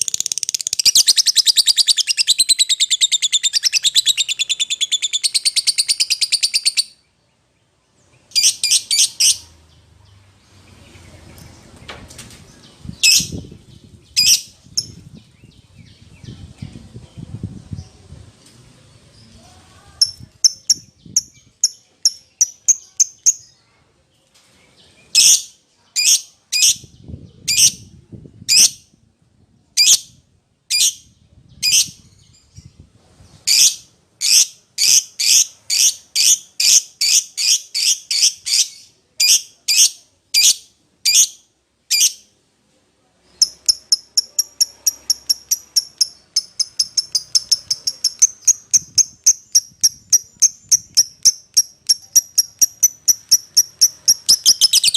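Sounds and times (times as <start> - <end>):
lovebird chirping: 0.0 - 7.2, 8.1 - 11.8, 12.5 - 16.7, 20.0 - 23.7, 33.4 - 42.3, 43.3 - 54.9.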